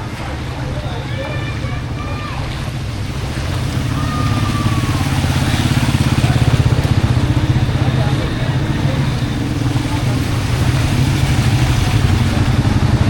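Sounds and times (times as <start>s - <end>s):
motorcycle engine running: 2.6s - 13.0s.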